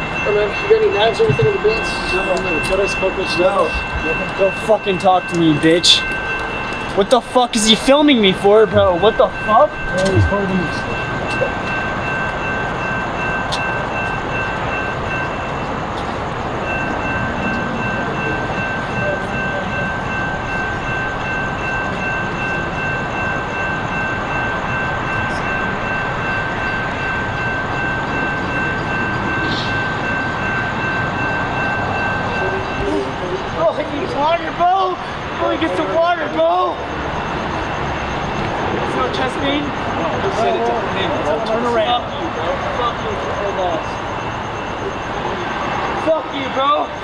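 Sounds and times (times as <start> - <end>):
faint high whine: 0.0 - 12.3
train engine rumble: 0.0 - 47.0.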